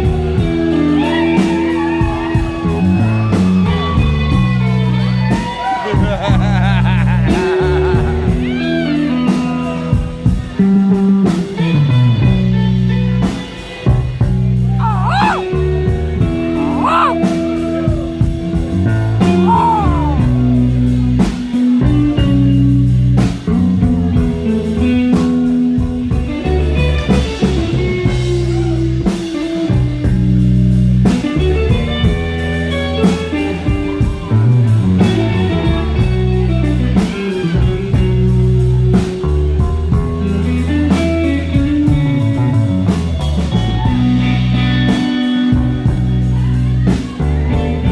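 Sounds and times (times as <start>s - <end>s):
blues-rock band playing: 20.0s - 47.9s.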